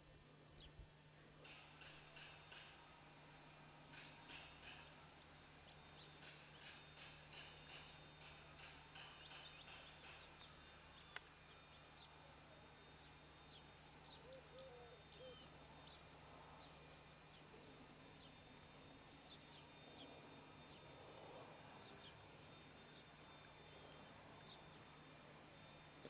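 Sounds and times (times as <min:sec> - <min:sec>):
small birds chirping: 0:03.9 - 0:12.2, 0:13.0 - 0:17.5, 0:19.2 - 0:21.0, 0:21.7 - 0:25.0.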